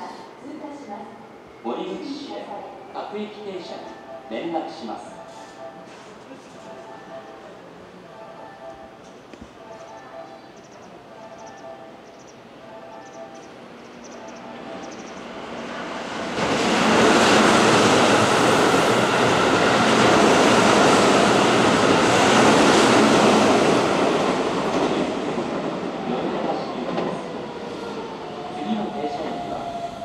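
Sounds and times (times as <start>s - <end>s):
train wheels on rail: 10.6s - 30.0s.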